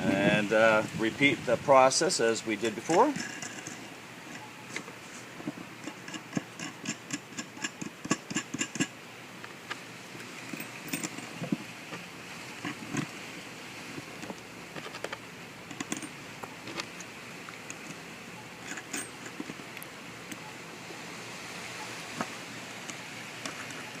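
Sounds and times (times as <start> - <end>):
metallic clicks and rattles: 2.9 - 4.9, 5.8 - 9.0, 10.4 - 11.6, 14.8 - 18.0, 18.6 - 20.4.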